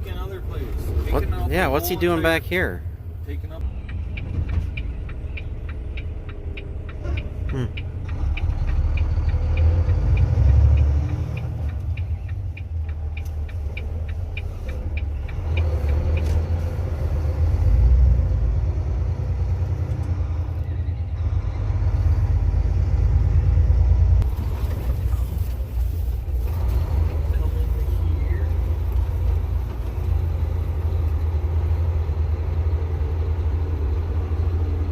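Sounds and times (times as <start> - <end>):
turn signal ticking: 3.2 - 17.7.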